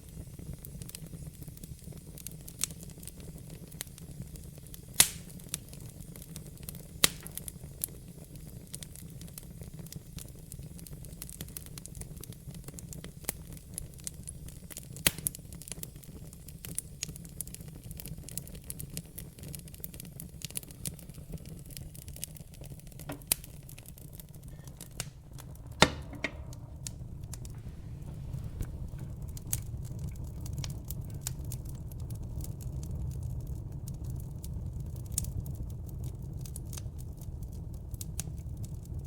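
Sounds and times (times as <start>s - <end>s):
fire crackling and popping: 0.0s - 39.0s
low fire rumble: 0.0s - 39.0s.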